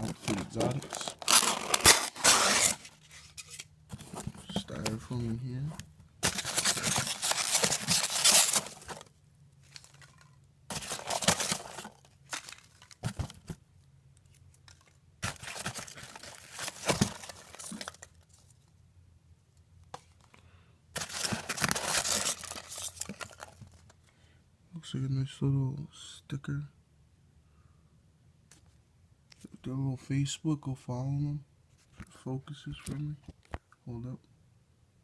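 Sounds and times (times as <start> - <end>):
packing material rustling and tearing: 0.0 - 4.8, 6.2 - 13.5, 15.2 - 18.4, 21.0 - 23.9.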